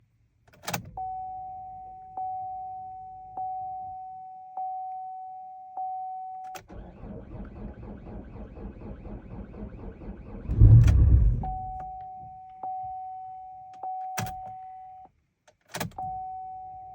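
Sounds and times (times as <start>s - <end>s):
starter cranking engine: 6.7s - 11.5s.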